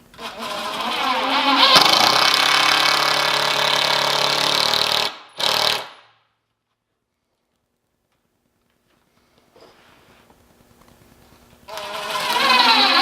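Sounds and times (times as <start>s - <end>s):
power drill driving screw into wood: 0.1s - 6.1s, 11.7s - 13.0s.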